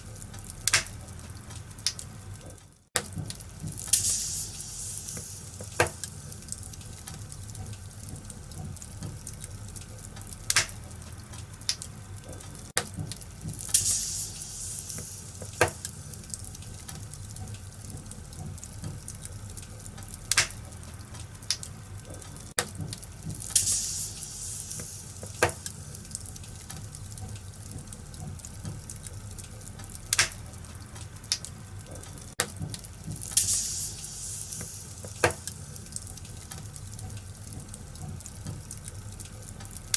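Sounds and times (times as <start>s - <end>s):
wood fire crackling: 0.0s - 39.9s
burning wood hissing: 3.5s - 7.5s, 13.4s - 17.3s, 23.1s - 27.0s, 32.9s - 36.9s.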